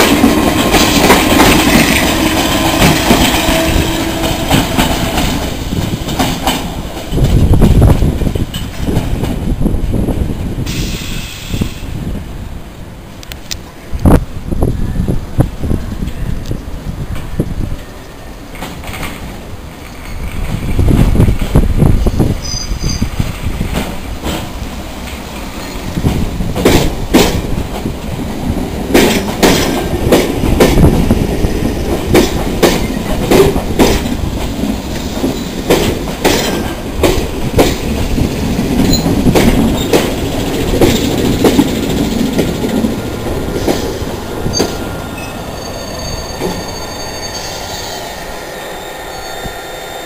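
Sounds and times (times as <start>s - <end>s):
train wheels clattering over joints: 0.0s - 11.7s, 22.2s - 44.9s
train rumble: 0.0s - 50.0s
wheel squeal: 22.1s - 23.2s, 44.5s - 50.0s.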